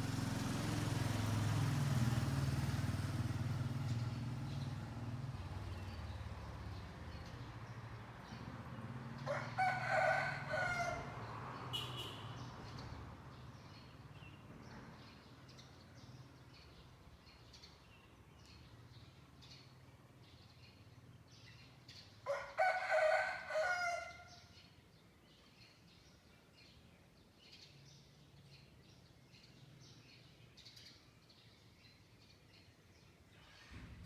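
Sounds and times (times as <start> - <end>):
vehicle engine hum: 0.0 - 12.2
small birds chirping: 2.6 - 9.3, 11.8 - 22.3, 24.2 - 33.5
rooster crowing: 9.2 - 11.2, 22.3 - 24.3.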